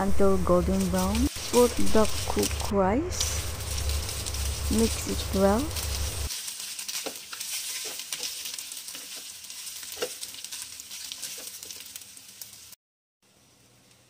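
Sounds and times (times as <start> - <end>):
rice and garlic sizzling in oil: 0.0 - 14.0
spatula scraping and tapping pan: 6.8 - 12.0.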